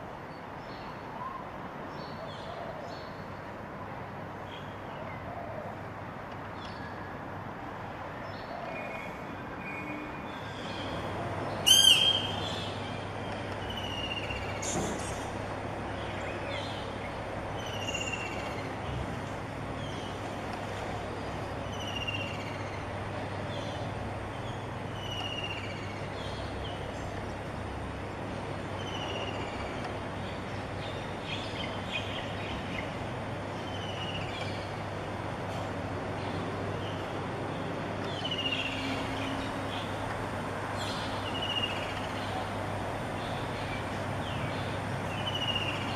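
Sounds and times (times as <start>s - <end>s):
harsh bird call: 11.6s - 12.5s
bird whistling call: 11.7s - 12.4s.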